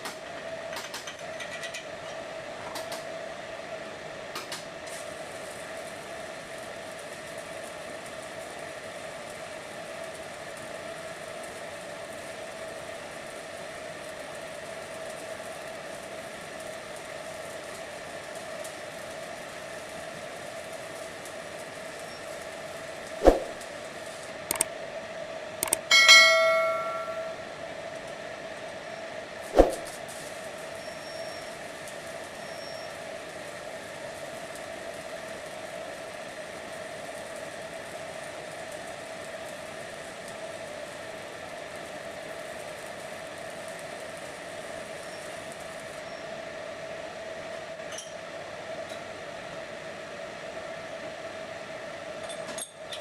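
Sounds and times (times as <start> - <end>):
machinery hum: 21.8 - 45.3
metal clang ringing: 25.9 - 27.4.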